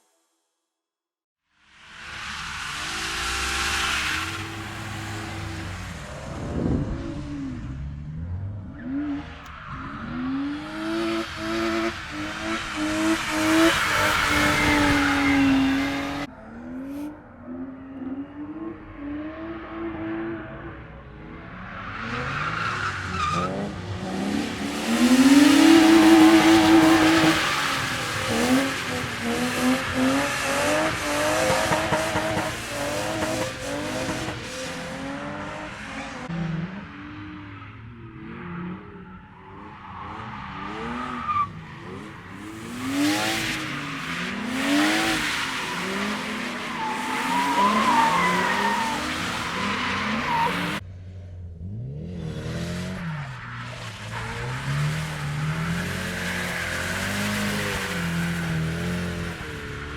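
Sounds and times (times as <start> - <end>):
car engines revving: 1.7 - 59.9
tyre squeal: 44.8 - 50.8.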